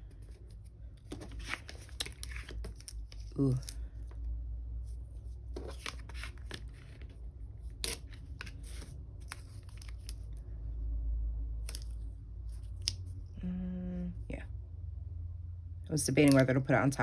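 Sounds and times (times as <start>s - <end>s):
low steady hum: 0.0s - 17.0s
paper stickers rustling: 0.1s - 4.1s, 5.2s - 10.4s.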